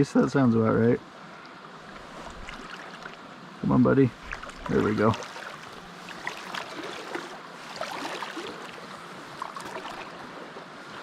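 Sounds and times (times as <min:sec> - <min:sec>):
small stream babbling: 0:00.0 - 0:11.0
small water splashes: 0:01.8 - 0:03.4, 0:04.1 - 0:11.0.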